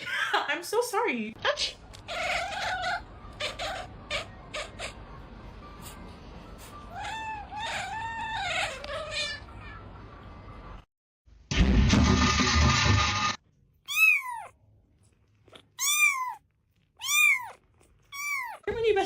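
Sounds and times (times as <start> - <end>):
cat meowing: 6.9 - 9.8, 13.9 - 14.5, 15.7 - 16.4, 17.0 - 18.7.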